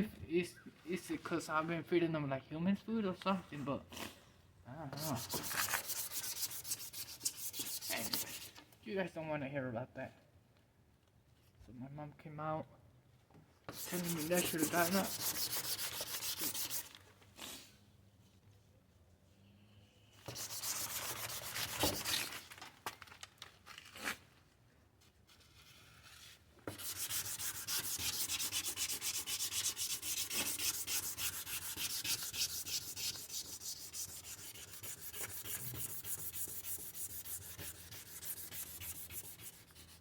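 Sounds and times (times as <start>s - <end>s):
sandpaper rasping on plastic: 5.0s - 8.6s, 13.7s - 17.0s, 20.2s - 22.4s, 26.6s - 40.0s.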